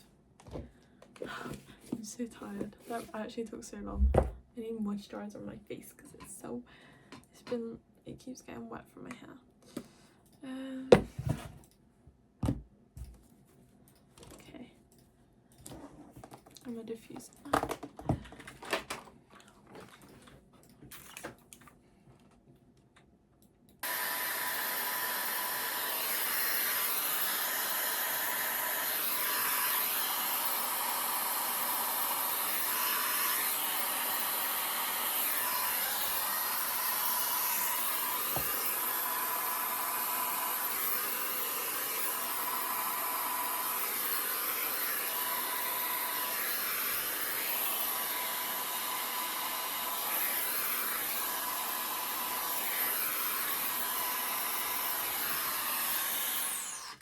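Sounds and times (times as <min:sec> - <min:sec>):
hair dryer blowing: 0:01.2 - 0:01.7, 0:23.8 - 0:57.0.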